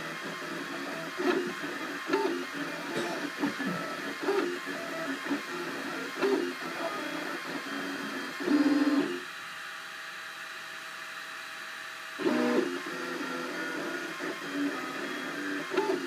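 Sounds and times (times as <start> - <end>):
printer stepper motors whining: 0.0 - 9.5, 12.0 - 16.0.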